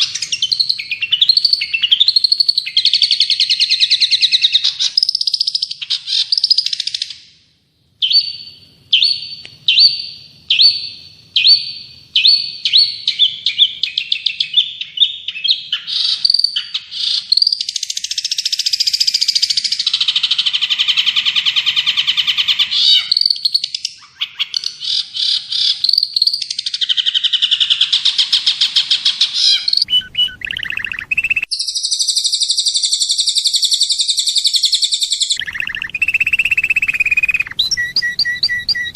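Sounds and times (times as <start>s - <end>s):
songbird chirps and trills: 0.0s - 38.9s
buzzy bird phrase: 26.8s - 32.0s, 35.4s - 38.9s.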